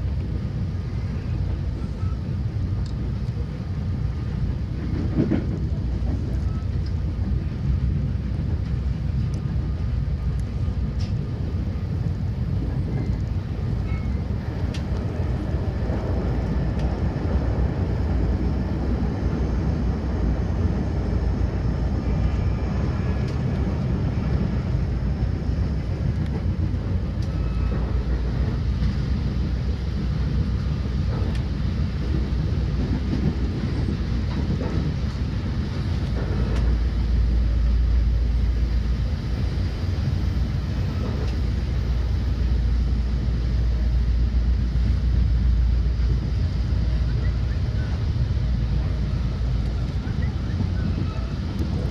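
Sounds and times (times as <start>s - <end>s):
train rumbling along track: 0.0s - 51.9s
faint track clicks: 2.8s - 3.4s.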